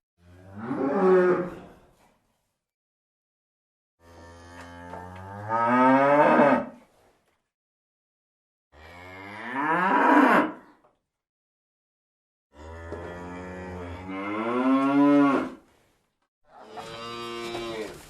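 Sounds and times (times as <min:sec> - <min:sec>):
cow mooing: 0:00.3 - 0:01.5, 0:04.0 - 0:06.7, 0:08.8 - 0:10.6, 0:12.6 - 0:15.6, 0:16.5 - 0:18.0.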